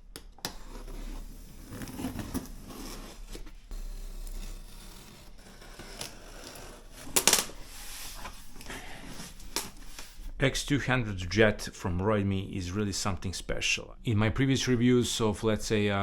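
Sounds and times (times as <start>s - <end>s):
cardboard packaging rustling: 0.5s - 3.7s.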